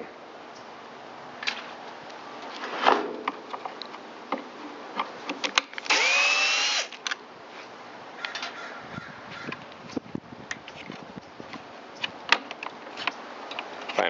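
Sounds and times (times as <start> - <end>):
tool handling clicks and knocks: 3.0 - 6.0, 10.5 - 14.0
cordless drill spinning up: 5.9 - 7.0.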